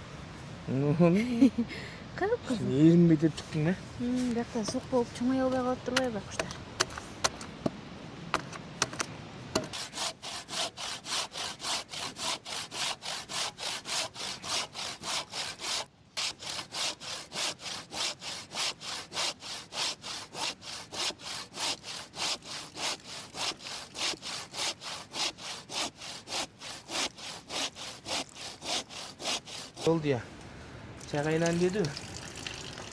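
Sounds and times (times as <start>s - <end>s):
hand saw cutting wood: 9.6s - 30.1s.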